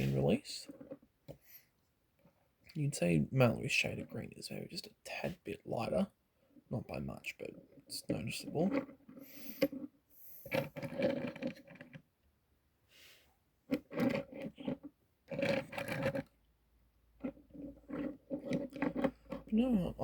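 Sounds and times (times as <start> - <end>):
person speaking: 0.0 - 0.7, 2.7 - 6.1, 6.7 - 8.8, 19.4 - 20.0.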